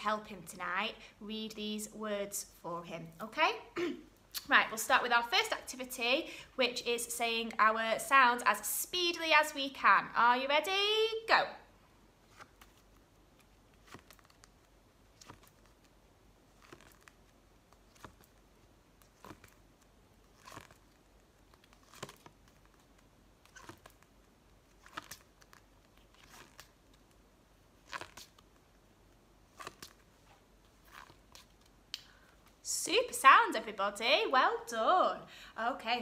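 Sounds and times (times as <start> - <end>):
flashcards rustling: 12.2 - 32.6.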